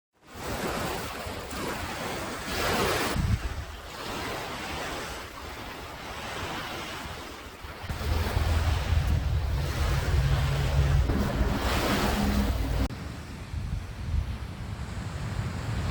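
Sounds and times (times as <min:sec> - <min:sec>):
surf washing onto beach: 0:02.3 - 0:15.9
wind buffeting microphone: 0:03.1 - 0:03.9, 0:07.6 - 0:15.9.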